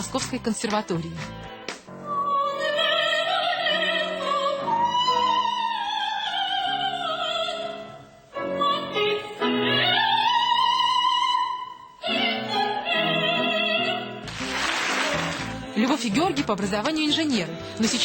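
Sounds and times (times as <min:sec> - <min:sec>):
woman singing operatically: 0:02.1 - 0:07.8, 0:08.4 - 0:14.2.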